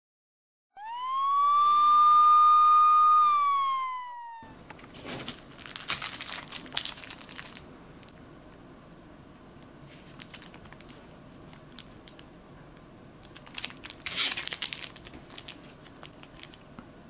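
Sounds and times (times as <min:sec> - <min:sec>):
siren wail: 0:00.7 - 0:04.7
paper rustling and crinkling: 0:04.8 - 0:07.6, 0:09.8 - 0:12.2, 0:13.3 - 0:16.6.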